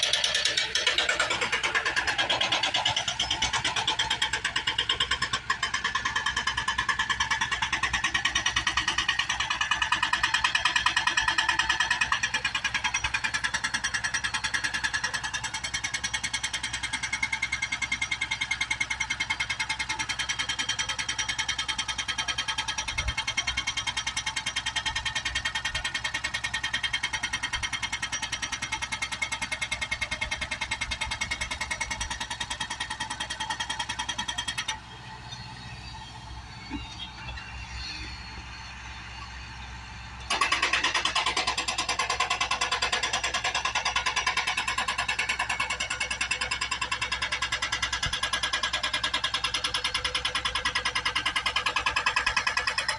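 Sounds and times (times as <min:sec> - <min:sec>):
hydraulic breaker hammering: 0:00.0 - 0:22.2, 0:40.2 - 0:52.9
excavator engine: 0:00.0 - 0:52.9.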